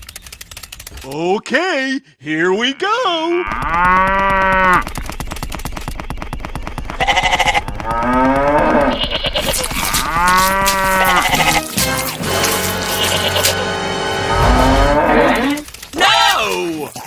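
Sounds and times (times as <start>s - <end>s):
fast rattling clatter: 0.0s - 1.2s, 3.5s - 13.2s, 15.5s - 17.0s
cow mooing: 7.9s - 9.0s, 9.8s - 11.7s, 12.8s - 15.6s.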